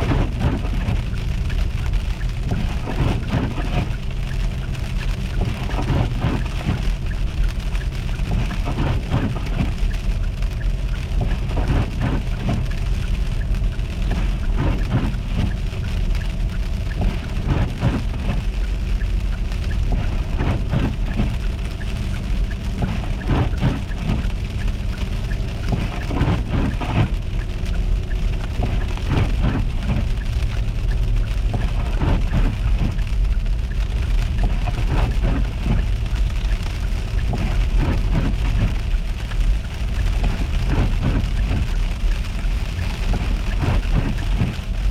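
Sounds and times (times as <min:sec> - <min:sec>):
car engine and tyres rumbling: 0:00.0 - 0:44.9
ice ticks and crackles: 0:00.0 - 0:44.9.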